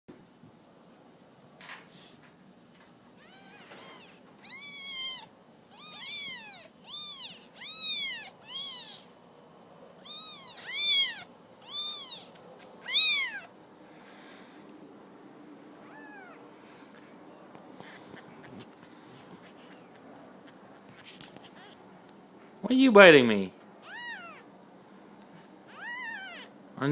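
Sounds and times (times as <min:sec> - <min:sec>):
kittens mewing: 0:03.2 - 0:09.1, 0:10.0 - 0:13.6, 0:15.8 - 0:16.6, 0:17.3 - 0:22.0, 0:23.8 - 0:24.5, 0:25.7 - 0:26.6.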